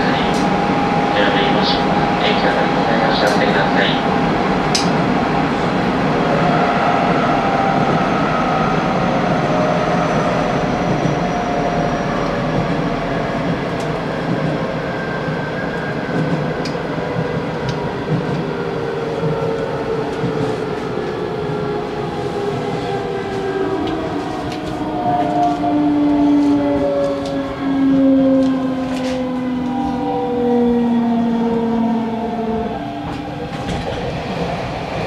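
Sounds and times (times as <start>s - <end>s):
train wheels on rails: 9.2s - 30.1s, 32.9s - 35.0s.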